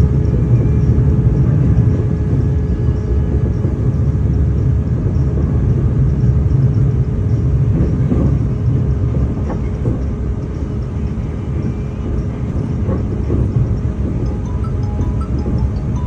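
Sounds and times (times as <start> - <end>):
moving vehicle rumble: 0.0 - 16.0
faint steady hum: 10.0 - 16.0.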